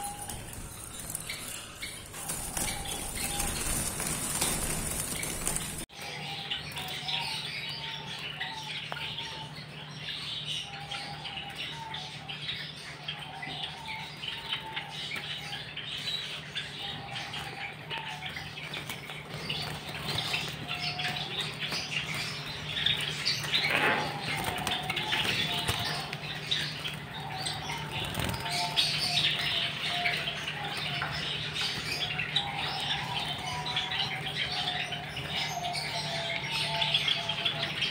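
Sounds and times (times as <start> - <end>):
wing flutters: 0.0 - 5.9
finches chirping: 0.0 - 37.9.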